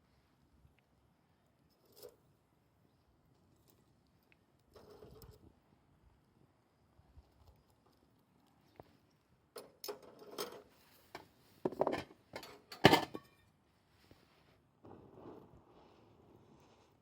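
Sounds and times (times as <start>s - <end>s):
cookware knocking and clattering: 11.7s - 13.4s.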